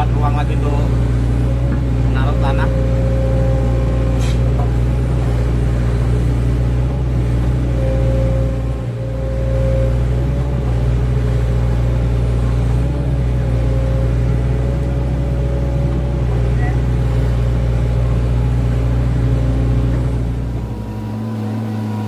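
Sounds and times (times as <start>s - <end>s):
excavator diesel engine: 0.0s - 22.0s
higher tone: 1.4s - 18.2s.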